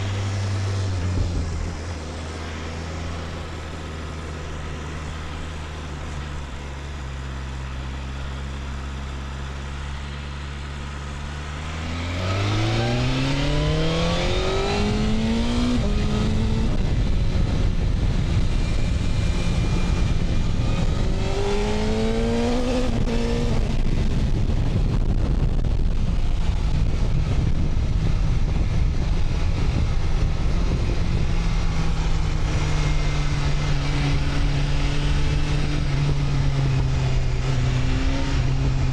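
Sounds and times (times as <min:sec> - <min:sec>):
wind rush: 0:00.0 - 0:03.6, 0:11.7 - 0:38.9
motorcycle engine accelerating: 0:00.0 - 0:38.9.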